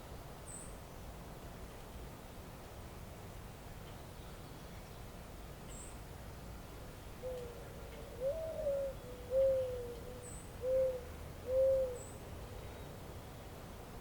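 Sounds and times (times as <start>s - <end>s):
faint outdoor hiss: 0.0s - 14.0s
bird hooting: 7.2s - 12.1s.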